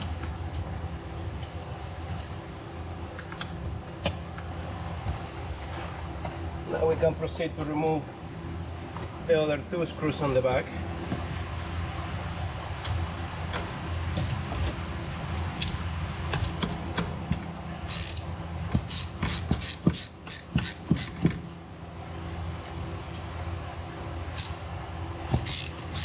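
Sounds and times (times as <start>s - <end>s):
steady low hum: 0.0s - 26.0s
hand ratchet clicking: 17.9s - 18.3s, 18.9s - 21.2s, 24.4s - 24.6s, 25.4s - 26.0s.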